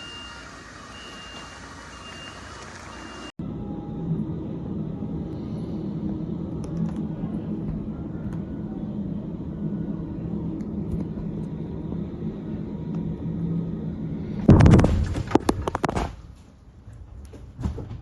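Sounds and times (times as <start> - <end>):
faint hum: 2.0 - 17.4
low rumble: 3.4 - 15.9.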